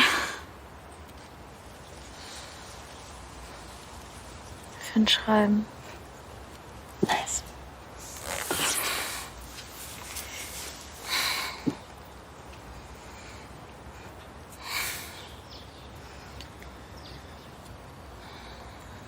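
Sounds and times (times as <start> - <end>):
faint background noise: 0.0 - 19.0.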